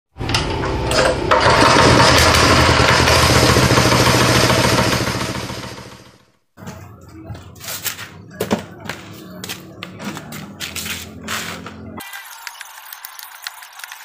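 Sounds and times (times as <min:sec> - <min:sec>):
small engine running: 0:00.2 - 0:06.3.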